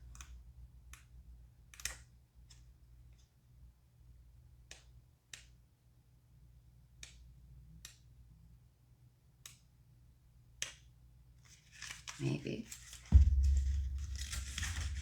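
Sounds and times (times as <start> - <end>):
faint sharp clicks: 7.0 - 8.1, 9.4 - 9.7
faint low hum: 12.2 - 15.0.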